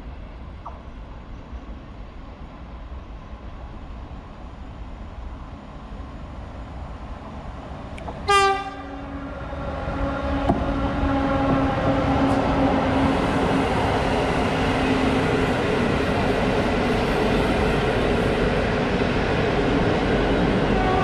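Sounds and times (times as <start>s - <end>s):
train rumbling past on rails: 0.0s - 21.0s
train horn blast: 8.2s - 9.2s, 9.8s - 12.8s, 20.8s - 21.0s.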